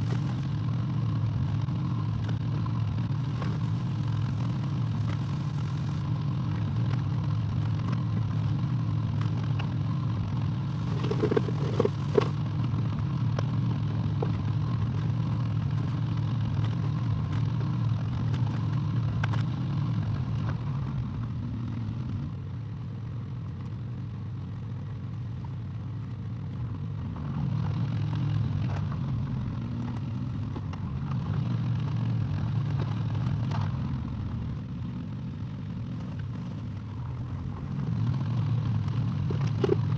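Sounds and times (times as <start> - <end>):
excavator engine running: 0.0 - 7.8, 10.2 - 13.0.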